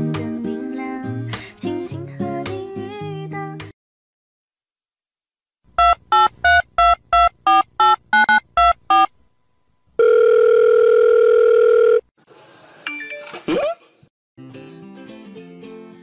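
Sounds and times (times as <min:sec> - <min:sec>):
long electronic tone: 0:05.8 - 0:09.1
short electronic beeps: 0:05.8 - 0:09.1.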